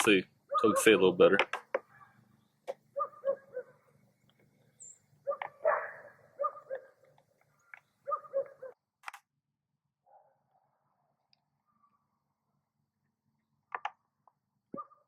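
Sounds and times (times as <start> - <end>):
dog barking: 0.5 - 1.1, 3.0 - 3.8, 5.2 - 7.0, 8.1 - 8.8, 14.7 - 15.0.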